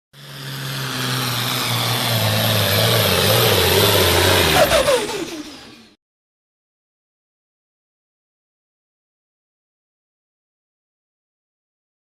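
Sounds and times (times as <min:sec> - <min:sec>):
truck engine revving hard: 0:00.1 - 0:06.0.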